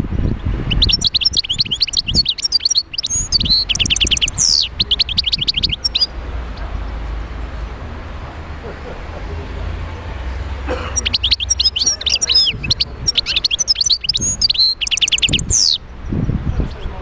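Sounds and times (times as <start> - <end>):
goldfinch singing: 0.3 - 6.9, 10.3 - 15.9.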